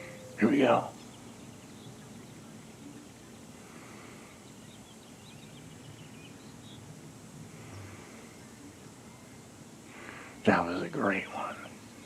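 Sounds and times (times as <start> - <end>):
bird chirping: 0.0 - 7.0
outdoor background noise: 0.0 - 12.0.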